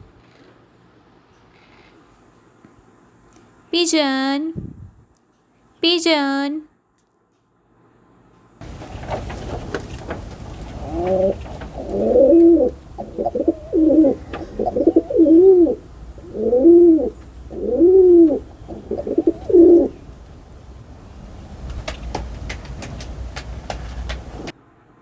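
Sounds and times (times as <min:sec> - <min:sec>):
pigeon cooing: 0:08.7 - 0:20.2.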